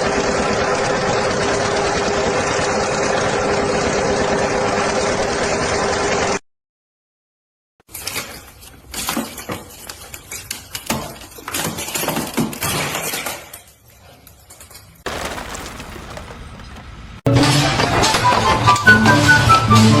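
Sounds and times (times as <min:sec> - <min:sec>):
glass shattering crashes: 0:14.7 - 0:16.8.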